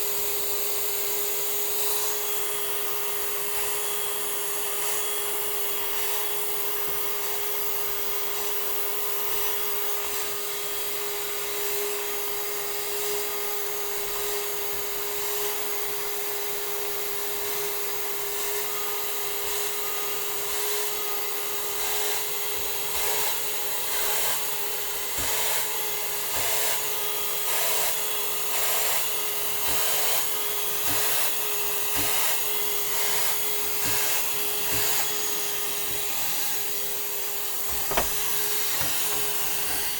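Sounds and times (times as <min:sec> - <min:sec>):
vacuum cleaner whining: 0:22.2 - 0:39.9.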